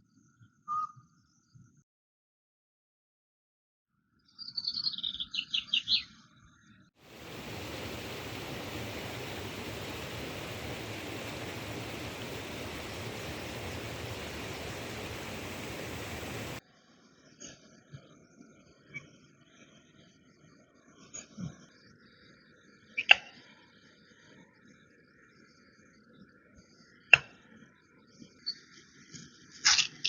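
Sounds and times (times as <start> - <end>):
bird chirping: 4.4 - 6.1, 7.2 - 16.6
steady rushing noise: 7.0 - 16.6.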